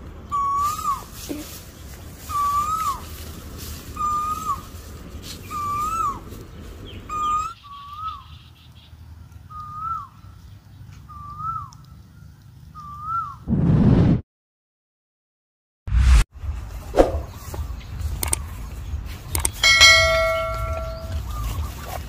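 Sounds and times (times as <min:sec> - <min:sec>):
bird whistled call: 0:02.3 - 0:03.0, 0:04.0 - 0:04.6, 0:05.4 - 0:06.2, 0:07.1 - 0:08.5, 0:09.5 - 0:10.1, 0:11.1 - 0:11.8, 0:12.8 - 0:13.5.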